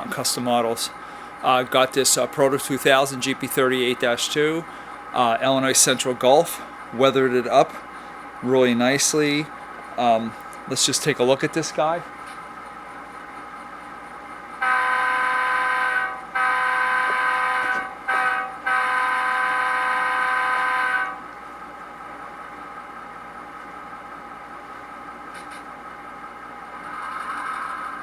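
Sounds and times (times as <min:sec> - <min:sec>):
locomotive air horn: 0:14.6 - 0:21.2.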